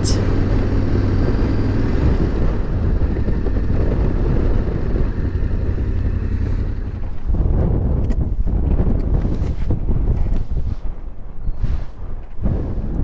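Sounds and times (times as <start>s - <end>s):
motorcycle engine running: 0.0s - 9.4s
wind rumble on microphone: 0.0s - 13.0s.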